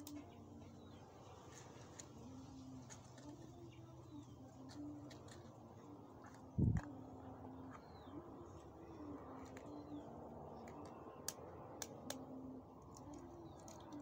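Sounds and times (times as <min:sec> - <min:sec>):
bird cooing: 0:02.2 - 0:11.3.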